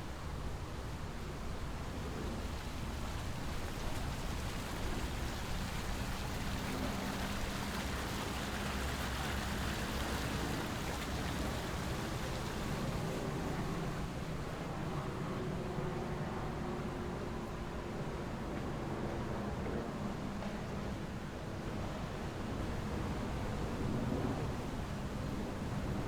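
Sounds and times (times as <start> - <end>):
water rushing: 3.6 - 14.4.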